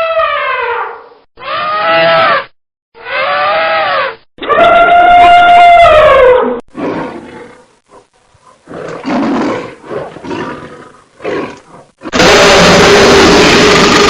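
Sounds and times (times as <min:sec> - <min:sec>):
long falling animal call: 0:01.4 - 0:02.4, 0:03.0 - 0:06.4
rough noisy animal calls: 0:01.4 - 0:14.0.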